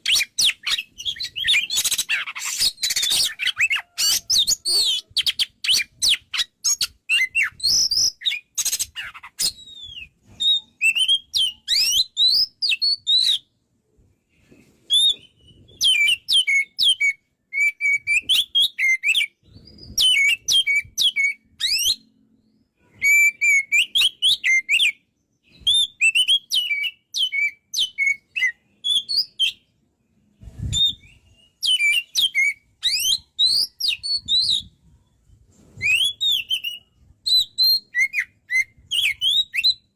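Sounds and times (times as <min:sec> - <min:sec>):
bird singing whistled phrases: 0:00.0 - 0:13.5, 0:14.9 - 0:29.7, 0:30.6 - 0:34.7, 0:35.8 - 0:39.9.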